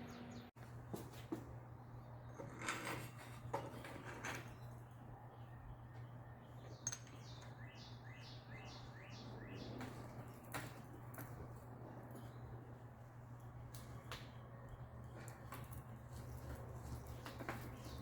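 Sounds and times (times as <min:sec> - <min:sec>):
bird chirping: 0:00.0 - 0:00.5, 0:04.4 - 0:10.8, 0:16.1 - 0:18.0.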